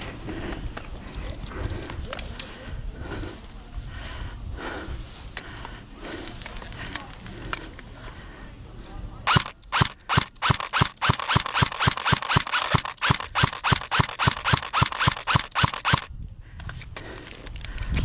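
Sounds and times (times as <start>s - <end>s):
airsoft gun shots: 9.3s - 16.1s.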